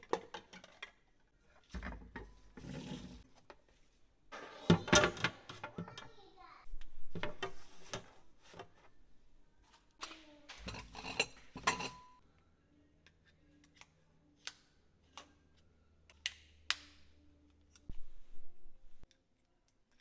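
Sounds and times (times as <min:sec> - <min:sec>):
kitchen items clattering: 0:04.4 - 0:06.2, 0:09.8 - 0:12.2.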